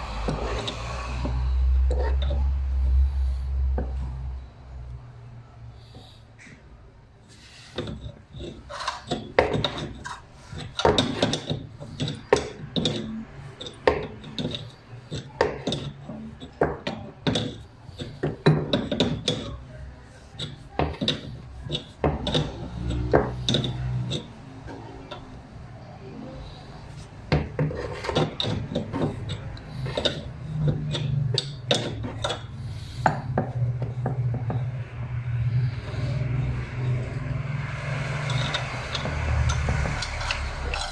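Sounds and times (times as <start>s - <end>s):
tools and parts being handled: 0.0s - 5.0s, 7.3s - 40.9s
steady low hum: 21.3s - 40.9s.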